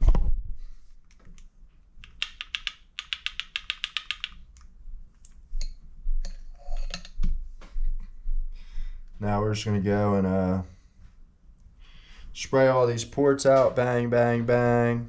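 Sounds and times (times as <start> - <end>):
small metal parts clicking: 2.0 - 4.4.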